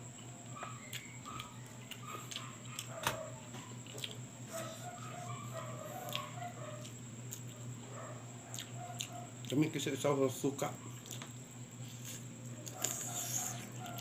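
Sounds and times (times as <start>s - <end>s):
steady low hum: 0.0s - 14.0s
chewing and lip smacking: 0.2s - 3.0s, 3.6s - 4.3s, 5.7s - 7.7s, 8.5s - 9.7s, 10.9s - 14.0s.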